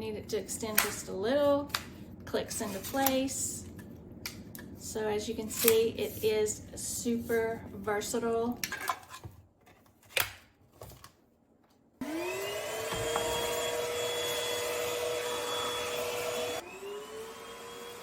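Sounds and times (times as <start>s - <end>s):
vacuum motor whine: 12.0s - 18.0s.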